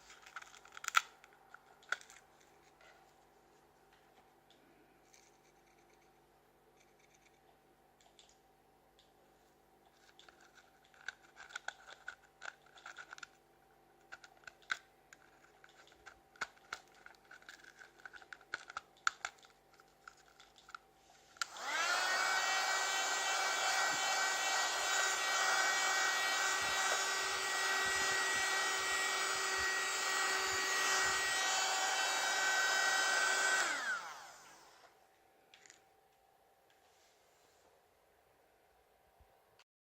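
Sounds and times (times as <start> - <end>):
plastic clicks and rattles: 0.1 - 3.0, 9.8 - 13.4, 14.0 - 20.8
small vacuum motor whining: 21.4 - 35.0.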